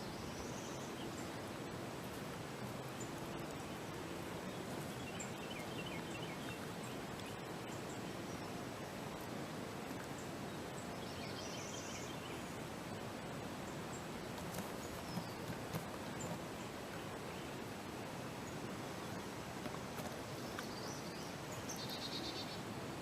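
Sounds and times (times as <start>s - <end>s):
faint songbird calls: 0.0s - 1.8s, 2.5s - 22.7s.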